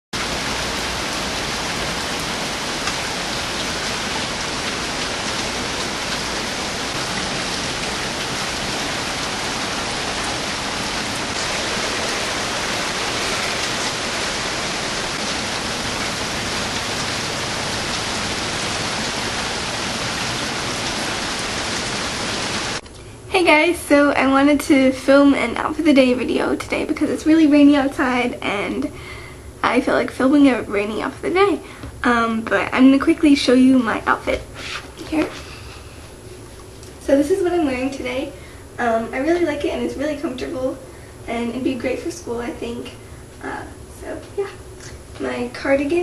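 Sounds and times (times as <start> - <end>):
heavy rain falling: 0.2 - 22.8.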